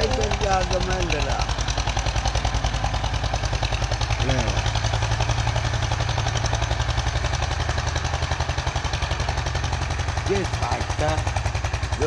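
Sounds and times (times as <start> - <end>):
tractor diesel engine chugging: 0.0 - 12.0.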